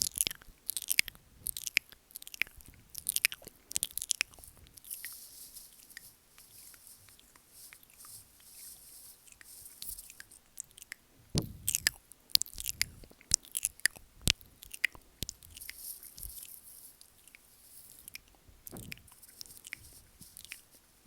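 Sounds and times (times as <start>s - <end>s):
wet mouth clicks and smacks: 0.0s - 4.4s, 10.6s - 15.7s.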